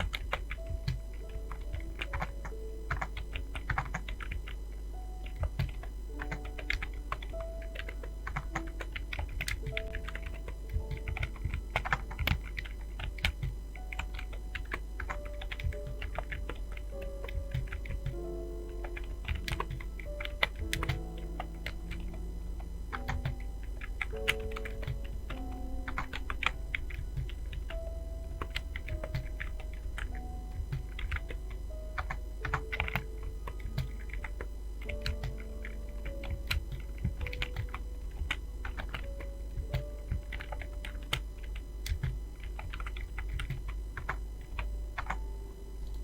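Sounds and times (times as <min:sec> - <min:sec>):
typing on computer keyboard: 0:00.0 - 0:04.6, 0:05.2 - 0:46.0
soft background music: 0:00.0 - 0:46.0.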